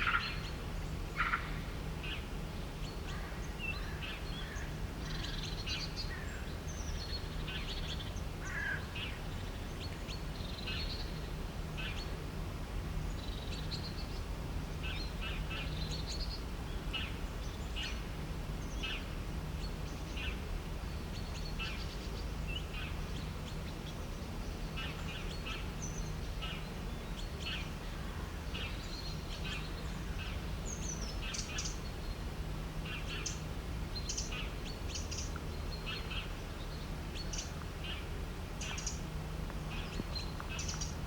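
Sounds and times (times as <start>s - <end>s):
low background hum: 0.0s - 41.0s
birds chirping: 18.6s - 41.0s.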